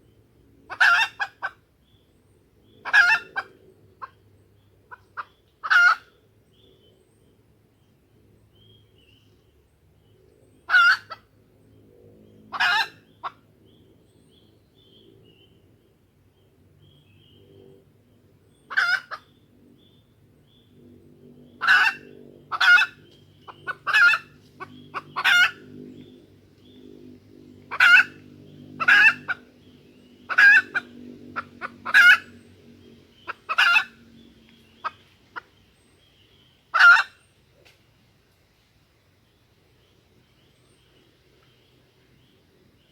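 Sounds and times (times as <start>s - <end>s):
junglefowl hen calling: 0.7s - 1.6s, 2.8s - 4.2s, 4.9s - 6.2s, 10.7s - 11.3s, 12.5s - 13.4s, 18.7s - 19.3s, 21.6s - 26.1s, 27.7s - 32.4s, 33.1s - 34.0s, 34.8s - 35.5s, 36.7s - 37.2s
faint low hum: 1.4s - 42.9s.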